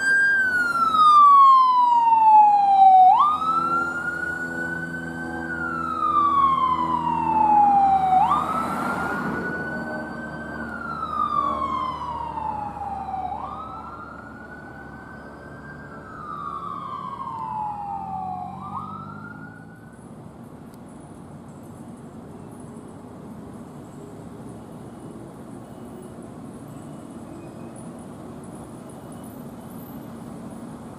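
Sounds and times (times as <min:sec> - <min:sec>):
emergency siren wailing: 0:00.0 - 0:20.0
vehicle engine hum: 0:00.0 - 0:30.9.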